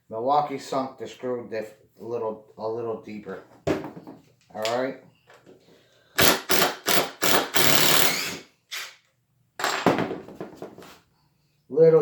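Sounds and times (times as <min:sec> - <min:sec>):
impact driver driving screws: 0:06.2 - 0:09.0.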